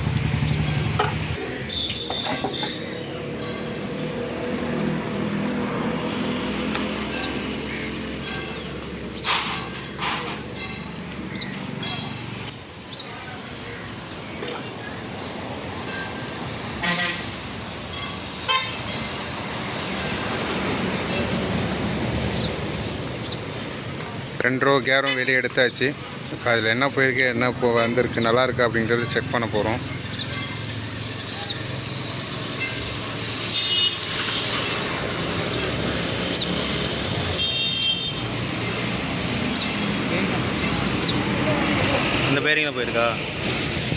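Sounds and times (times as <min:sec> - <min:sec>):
road traffic noise: 0:00.0 - 0:43.9
vehicle horn toots: 0:01.6 - 0:02.8, 0:16.8 - 0:17.4, 0:18.0 - 0:18.8, 0:33.6 - 0:34.6, 0:37.4 - 0:38.3.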